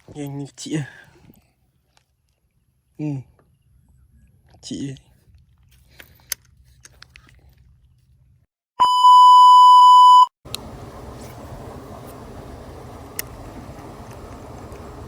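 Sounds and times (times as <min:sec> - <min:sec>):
high-pitched bleep tone: 0:08.8 - 0:10.3.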